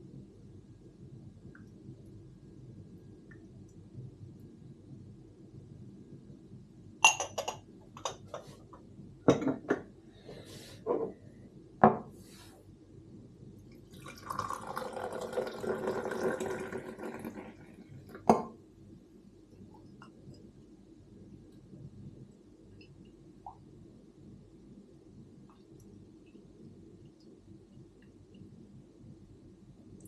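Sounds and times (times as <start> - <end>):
crockery and glass clinking: 7.0 - 8.5, 9.3 - 9.8
coffee pouring into a cup: 13.7 - 18.4.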